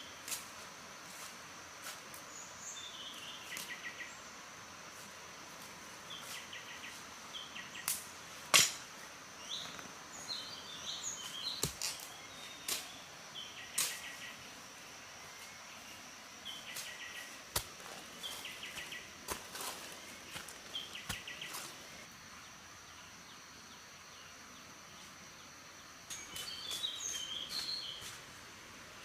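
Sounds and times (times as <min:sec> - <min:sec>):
insect drone: 0:00.0 - 0:29.0
birds chirping: 0:15.2 - 0:22.1, 0:26.1 - 0:28.2.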